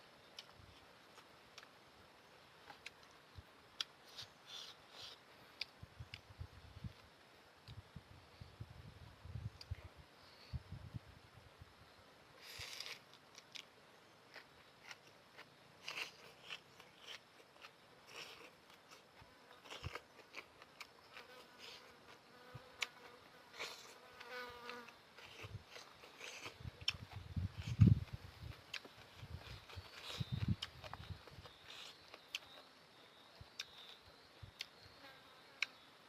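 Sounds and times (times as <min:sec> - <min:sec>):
noodles being eaten: 0:12.4 - 0:13.7, 0:14.3 - 0:22.2.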